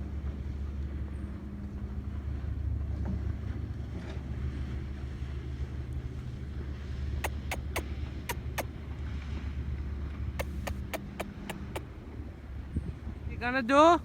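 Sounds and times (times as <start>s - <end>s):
quick sharp clicks: 7.2s - 8.6s, 10.4s - 11.8s.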